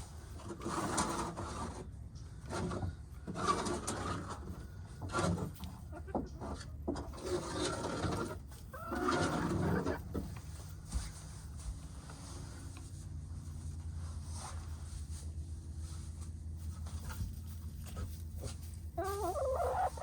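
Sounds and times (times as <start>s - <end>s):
hens clucking: 5.4s - 10.6s, 18.4s - 20.0s.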